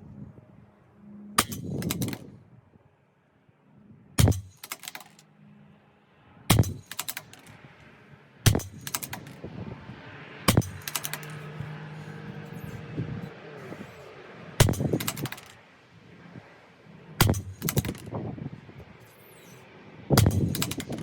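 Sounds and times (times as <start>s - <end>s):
rifle bolt clicks: 4.3s - 5.2s, 6.6s - 7.6s, 10.7s - 11.5s, 14.7s - 15.6s.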